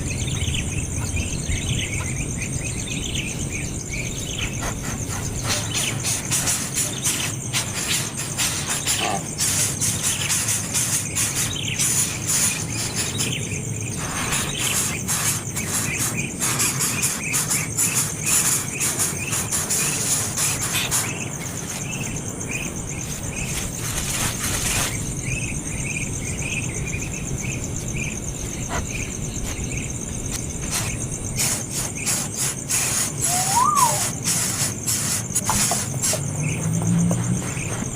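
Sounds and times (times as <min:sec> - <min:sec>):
high-pitched insect drone: 0:00.0 - 0:37.9
baby bird chirping: 0:00.1 - 0:22.2, 0:30.6 - 0:36.6.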